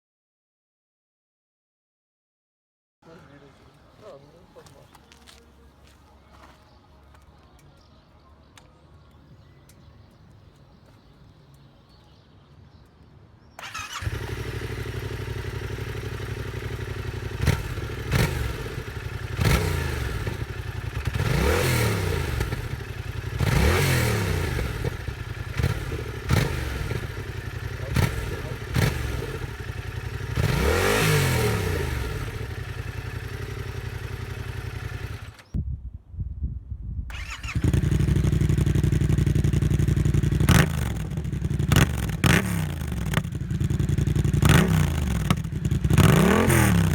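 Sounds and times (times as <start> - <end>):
motorcycle engine idling and revving: 13.6 - 35.6, 37.1 - 46.9
motorcycle engine starting: 13.6 - 35.6, 37.1 - 46.9.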